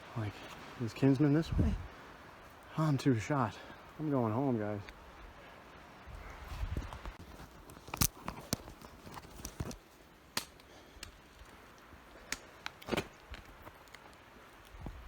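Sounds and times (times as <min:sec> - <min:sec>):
faint hiss: 0:00.0 - 0:07.2.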